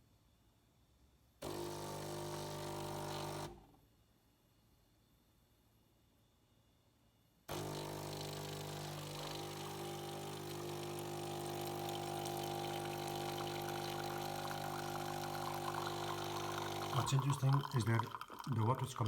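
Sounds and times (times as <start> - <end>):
espresso machine humming: 1.4 - 3.6, 7.5 - 18.5.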